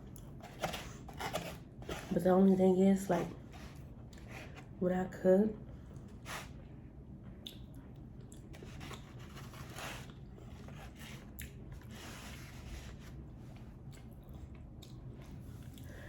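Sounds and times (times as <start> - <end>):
person chewing food: 7.3 - 9.2, 10.0 - 11.9, 13.6 - 16.0
soft wet mouth sounds: 7.4 - 8.5.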